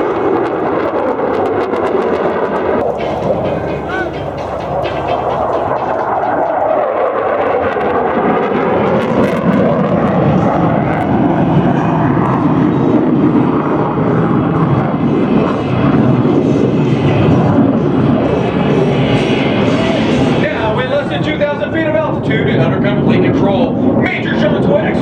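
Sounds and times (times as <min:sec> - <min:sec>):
jet fighter roaring past: 0:02.8 - 0:08.6, 0:13.6 - 0:25.0.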